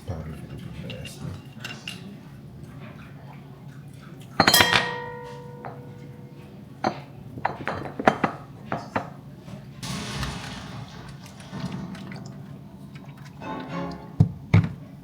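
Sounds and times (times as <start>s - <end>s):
utensils and dishes clattering: 0.0s - 3.2s, 4.0s - 9.1s, 9.8s - 15.0s
loud ringing knock: 9.8s - 13.2s.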